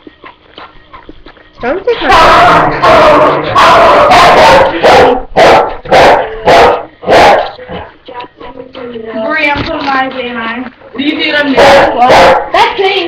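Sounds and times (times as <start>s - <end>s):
dog barking loudly: 2.0s - 7.6s, 11.5s - 12.7s.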